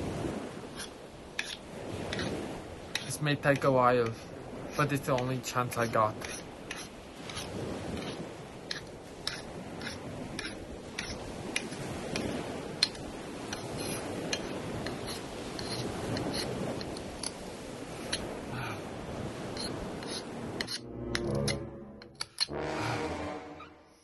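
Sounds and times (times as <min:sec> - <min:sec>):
knife scraping clicks: 0:00.8 - 0:03.1, 0:06.2 - 0:17.4, 0:18.0 - 0:18.3, 0:19.5 - 0:22.5
low rushing background: 0:19.5 - 0:24.0.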